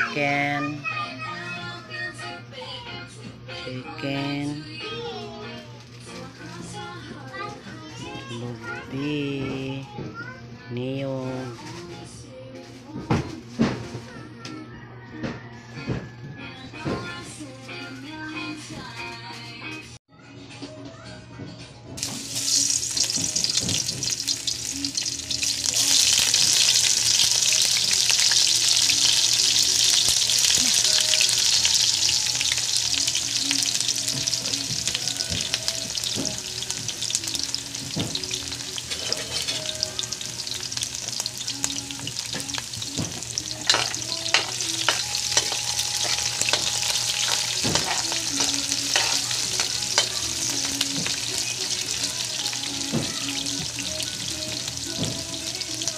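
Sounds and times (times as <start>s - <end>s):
garlic and onion sizzling in oil: 22.0s - 55.9s
metal spatula scraping pan: 43.6s - 50.8s.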